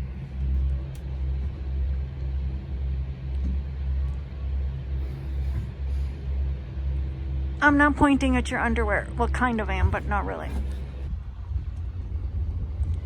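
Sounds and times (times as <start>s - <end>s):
wind buffeting microphone: 3.4s - 13.0s.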